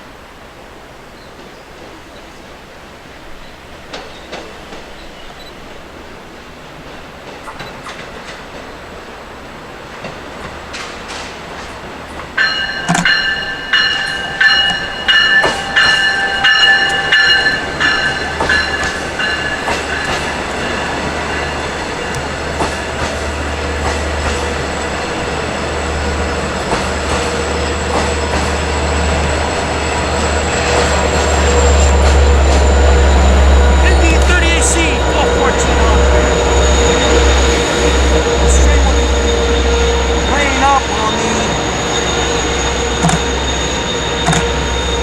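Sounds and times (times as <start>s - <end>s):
diesel locomotive rumble: 8.5s - 45.0s
train wheels clicking over rail joints: 9.8s - 33.0s, 42.2s - 45.0s
high-pitched wheel squeal: 36.2s - 45.0s.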